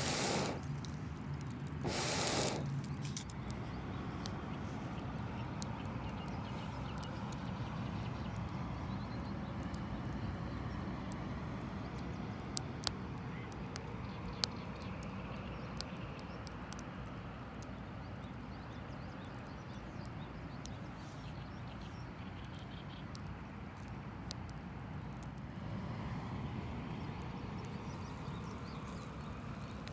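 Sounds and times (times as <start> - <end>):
fire pops and snaps: 0.0 - 7.5, 27.2 - 29.9
campfire crackling: 0.0 - 7.6, 8.2 - 15.1, 22.4 - 29.9.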